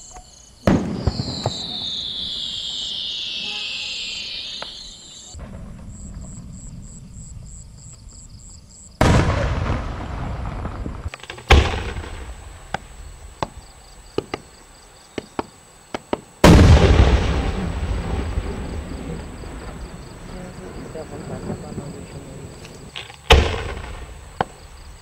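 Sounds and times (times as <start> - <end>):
firework shells bursting: 0.7 - 6.3, 9.0 - 14.5, 22.6 - 24.8.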